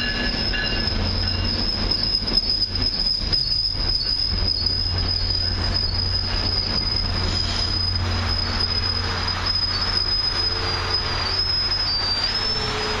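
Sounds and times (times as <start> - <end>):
high-pitched brake squeal: 0.0 - 13.0
train coaches rumbling past: 0.0 - 13.0.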